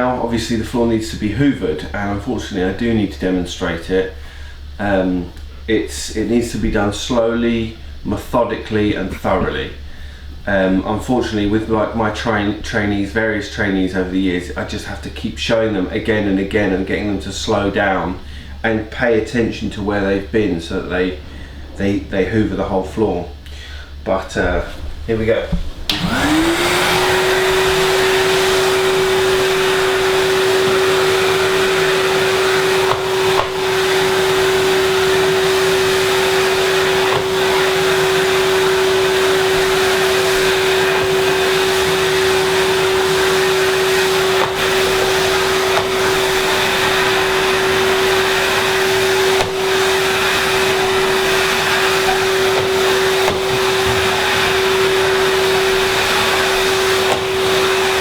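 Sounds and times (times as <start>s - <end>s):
vacuum cleaner motor whine: 25.4s - 58.0s.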